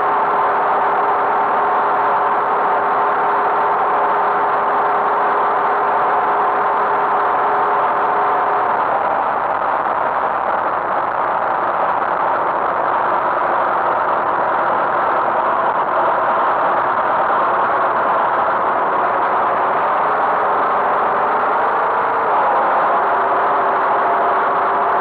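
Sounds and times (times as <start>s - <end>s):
tractor engine running: 5.8s - 25.0s.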